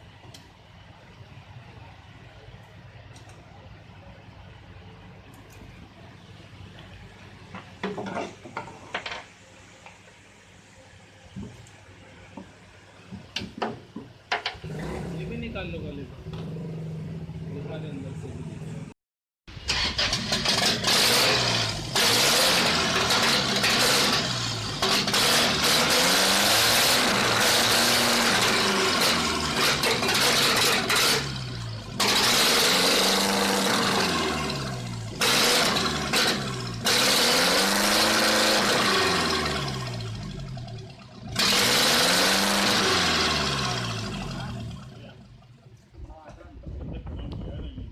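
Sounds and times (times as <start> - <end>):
petrol engine revving: 14.4 - 18.9, 19.5 - 45.5.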